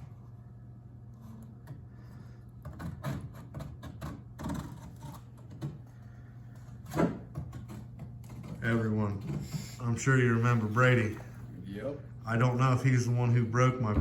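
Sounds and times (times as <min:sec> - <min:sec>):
steady low hum: 0:04.7 - 0:14.0.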